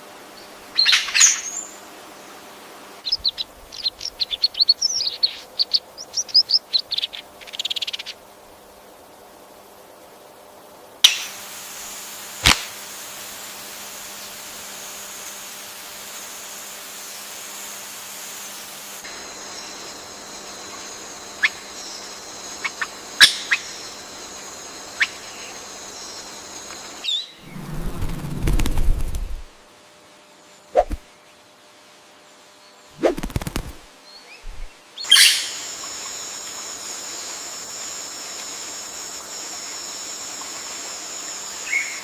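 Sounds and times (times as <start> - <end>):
high insect drone: 0.0 - 31.0, 33.0 - 42.0
bird chip calls: 3.0 - 8.2, 34.4 - 36.2.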